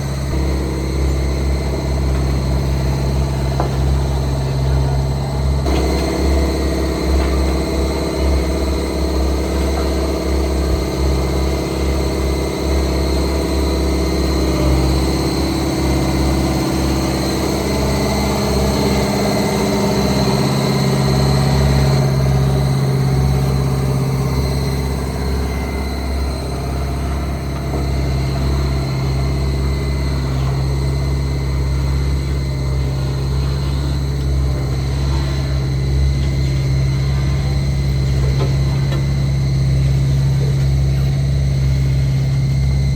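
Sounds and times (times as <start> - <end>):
heavy machinery diesel engine running: 0.0 - 42.9.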